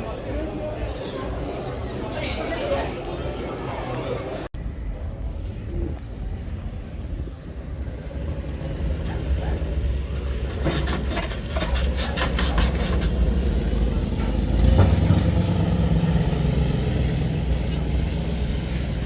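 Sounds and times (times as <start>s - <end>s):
car engine low rumble: 4.6s - 19.0s.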